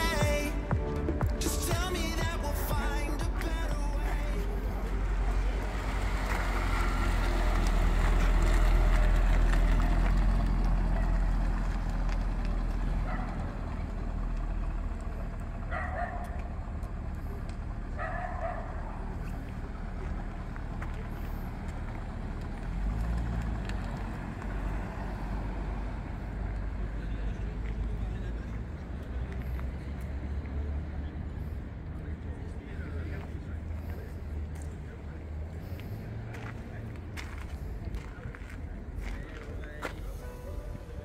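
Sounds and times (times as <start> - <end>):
old car engines driving past: 0.0 - 41.0
dog barking: 13.0 - 13.4, 15.7 - 16.4, 18.0 - 18.9.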